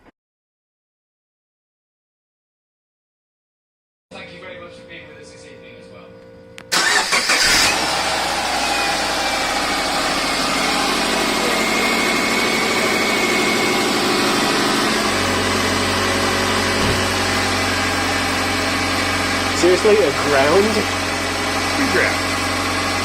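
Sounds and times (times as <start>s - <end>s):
car engine starting and idling: 6.3s - 23.0s
low hum: 7.7s - 20.1s.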